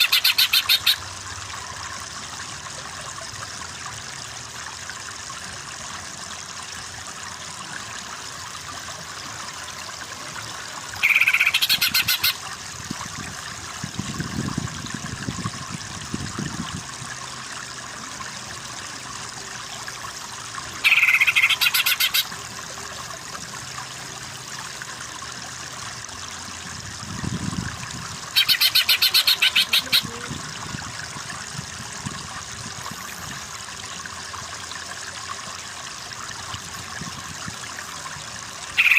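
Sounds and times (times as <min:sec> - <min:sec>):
running water: 0:00.0 - 0:38.9
bird calling fast high notes: 0:11.0 - 0:12.4, 0:28.4 - 0:30.2.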